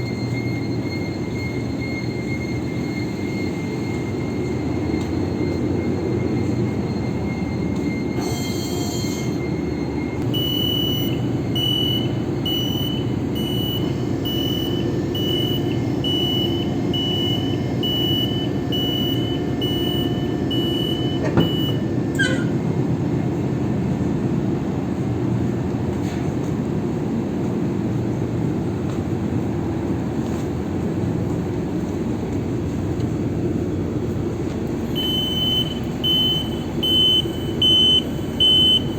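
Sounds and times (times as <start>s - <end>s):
high beeping alarm: 0.0s - 22.6s, 34.8s - 38.9s
engine room machinery hum: 0.0s - 38.9s.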